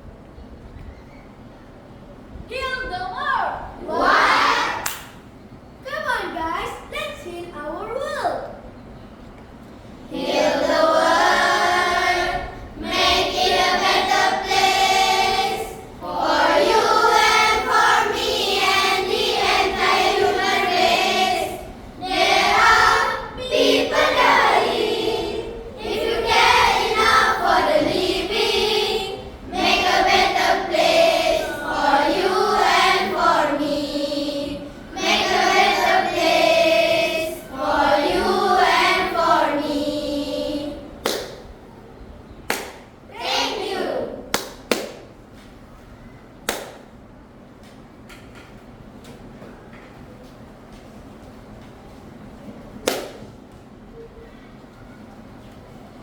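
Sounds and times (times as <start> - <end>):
children's choir singing: 3.8 - 5.2, 10.1 - 41.5, 43.1 - 44.3.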